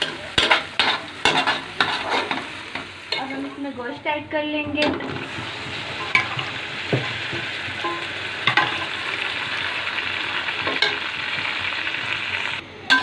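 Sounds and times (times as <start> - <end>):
meat sizzling in hot oil: 0.0 - 3.9, 5.0 - 12.6.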